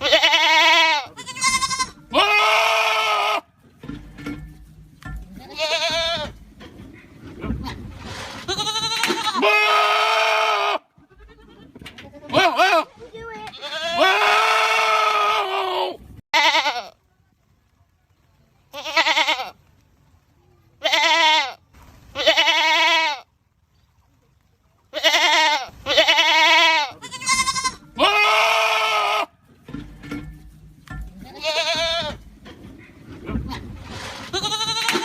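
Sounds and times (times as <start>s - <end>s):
goats bleating: 0.0s - 3.5s, 5.4s - 6.4s, 7.6s - 17.0s, 18.7s - 19.6s, 20.8s - 21.6s, 22.2s - 23.3s, 24.9s - 29.3s, 31.2s - 35.0s.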